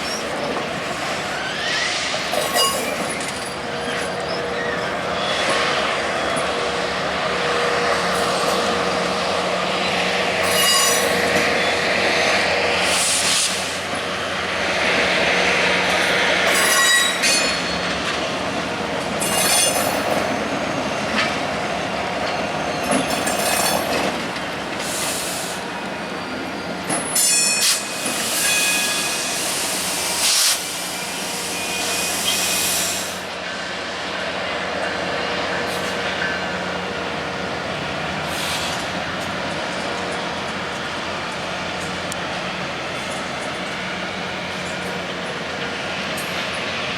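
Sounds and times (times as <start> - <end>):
high-pitched wheel squeals: 0.0 - 6.6, 9.8 - 11.9, 16.5 - 17.9, 19.2 - 20.2, 26.2 - 29.6
train wheels rumbling on rail: 0.0 - 46.9.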